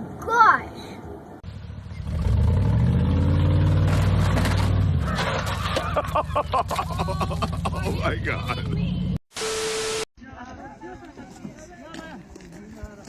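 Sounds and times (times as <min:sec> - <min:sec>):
vehicle engine running hard: 0:01.4 - 0:05.0.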